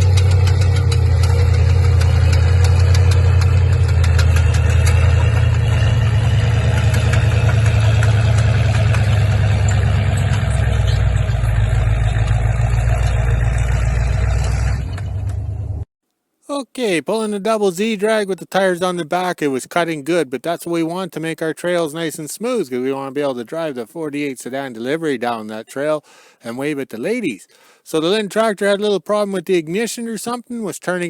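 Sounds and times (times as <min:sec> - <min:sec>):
tractor engine droning: 0:00.0 - 0:15.9.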